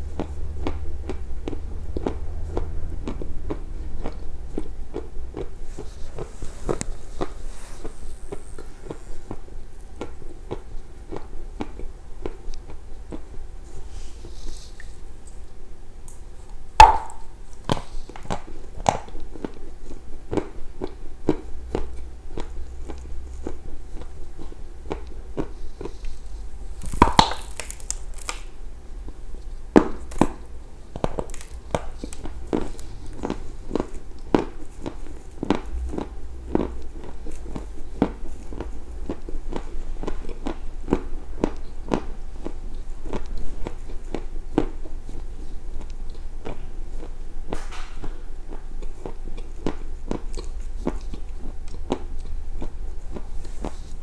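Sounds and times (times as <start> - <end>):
crunching chews: 0.0 - 15.4, 16.1 - 28.5, 29.1 - 54.0
biting dry clay: 20.3 - 28.5.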